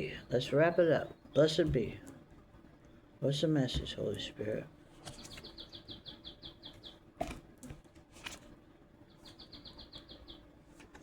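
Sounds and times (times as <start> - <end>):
small bird chirping: 5.0 - 7.4, 8.9 - 10.8.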